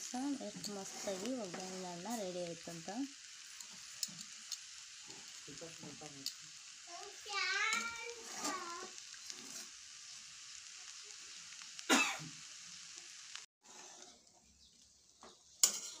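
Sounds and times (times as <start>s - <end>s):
rice sizzling in hot oil: 0.0s - 16.0s.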